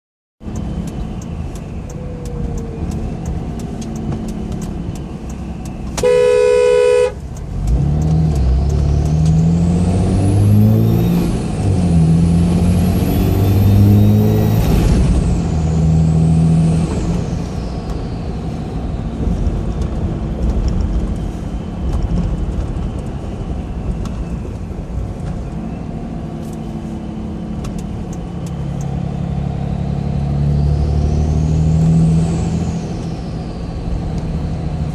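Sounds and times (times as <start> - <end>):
diesel engine accelerating: 0.4 - 34.9
turbocharger whistle: 6.0 - 7.2
vehicle horn honk: 6.0 - 7.2.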